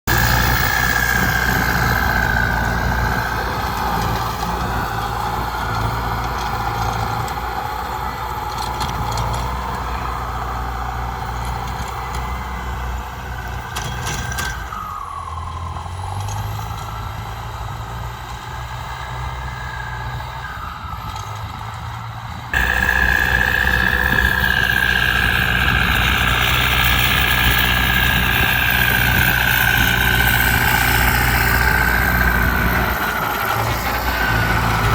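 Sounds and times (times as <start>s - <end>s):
tractor diesel engine running: 0.0s - 34.9s
high whine: 22.6s - 29.9s.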